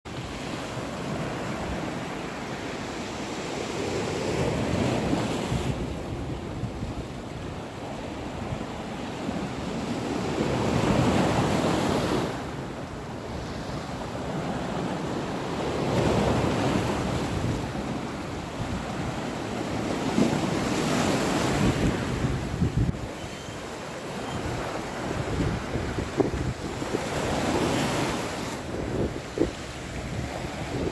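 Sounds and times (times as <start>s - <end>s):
ocean waves surging: 0.1s - 30.9s
wind rumbling on microphone: 16.0s - 23.6s, 24.3s - 30.9s.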